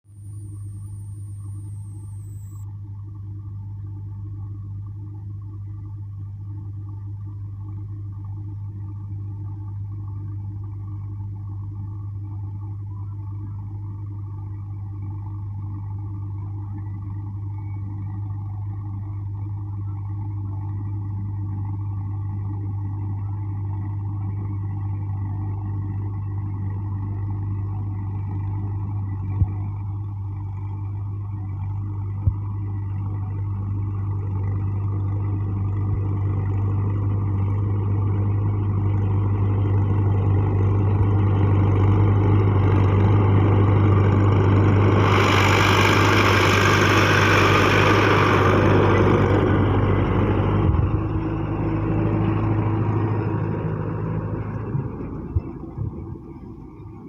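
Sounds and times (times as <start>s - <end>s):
tractor engine droning: 0.0s - 57.0s
loud hissing noise: 44.9s - 49.0s.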